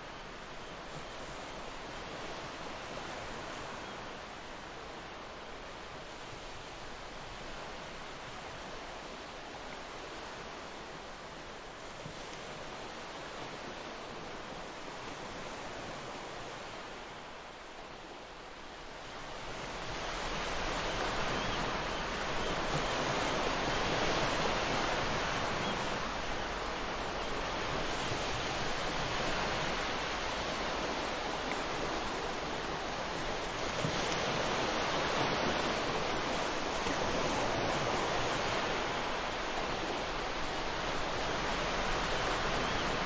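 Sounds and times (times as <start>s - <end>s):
ocean waves breaking: 18.9s - 43.0s.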